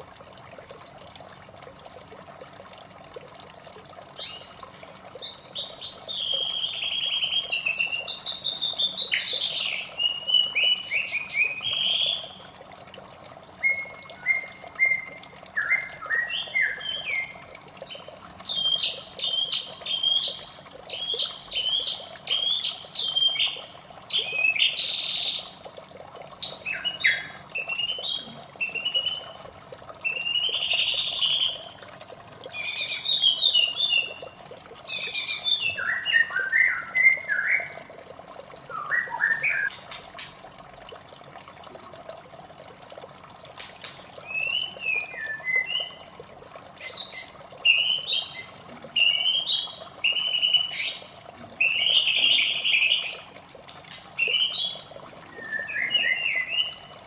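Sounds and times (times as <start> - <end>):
running water: 0.0 - 57.0
bird singing whistled phrases: 5.3 - 12.4, 13.6 - 17.4, 18.5 - 23.6, 26.5 - 29.4, 30.1 - 31.7, 35.0 - 37.8, 38.7 - 39.8, 44.2 - 46.1, 46.8 - 53.2, 54.2 - 56.9.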